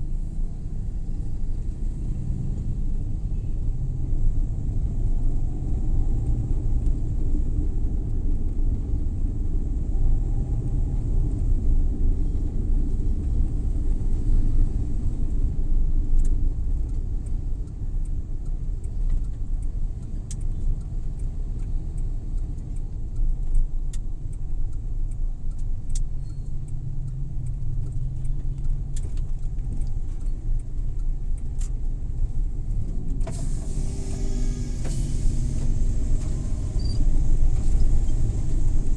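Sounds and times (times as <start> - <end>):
van engine and road rumble: 0.0 - 38.9
faint clicks: 16.2 - 33.4.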